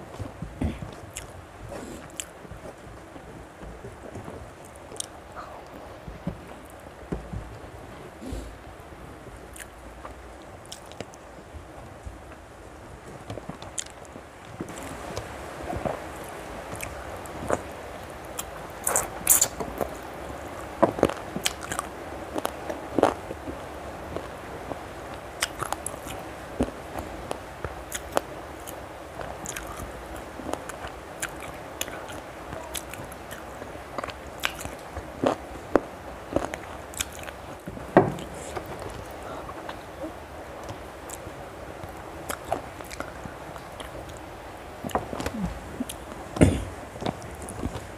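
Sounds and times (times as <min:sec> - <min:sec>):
person chewing food: 0:00.6 - 0:02.7, 0:04.6 - 0:05.8, 0:09.5 - 0:09.8, 0:10.6 - 0:11.2, 0:13.8 - 0:14.0, 0:16.7 - 0:20.0, 0:20.8 - 0:23.4, 0:25.4 - 0:41.3, 0:42.2 - 0:44.2, 0:44.8 - 0:47.9
wet mouth clicks and smacks: 0:10.7 - 0:11.0, 0:18.4 - 0:19.6, 0:34.4 - 0:34.8.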